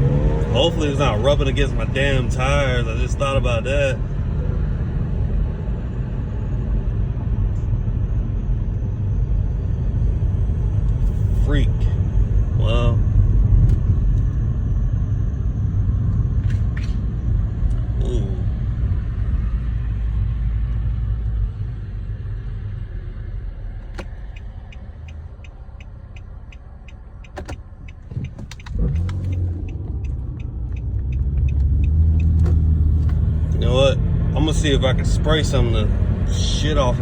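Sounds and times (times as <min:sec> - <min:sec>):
car low rumble from underneath: 0:00.0 - 0:37.0
light ticking: 0:23.9 - 0:33.3.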